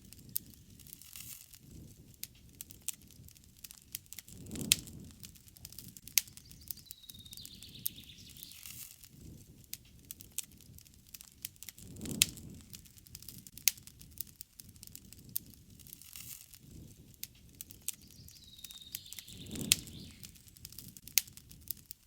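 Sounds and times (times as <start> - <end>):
campfire crackling and popping: 0.0 - 22.0
low rush of flame: 0.0 - 22.0
bird calling: 6.3 - 8.7, 18.0 - 20.6.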